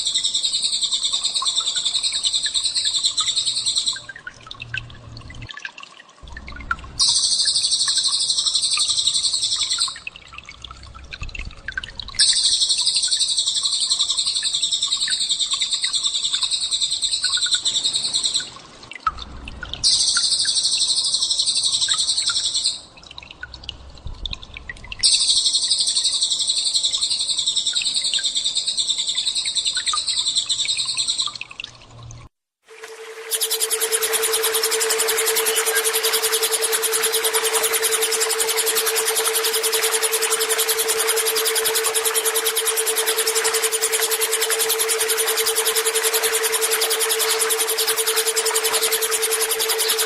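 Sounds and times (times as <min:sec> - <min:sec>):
songbird high dense trilling: 0:32.9 - 0:50.0.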